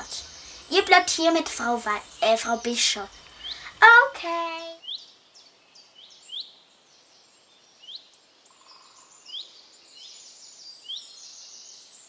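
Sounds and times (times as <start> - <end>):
bird rising chirp: 0.0 - 4.0
birds twittering: 0.0 - 4.2.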